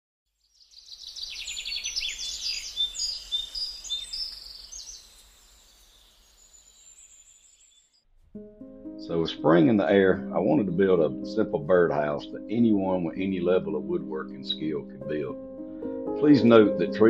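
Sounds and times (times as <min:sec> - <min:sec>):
songbirds chirping and trilling: 0:00.5 - 0:08.0.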